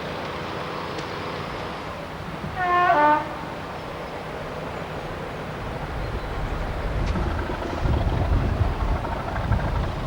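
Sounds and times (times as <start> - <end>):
diesel locomotive engine rumbling: 0.0 - 10.0.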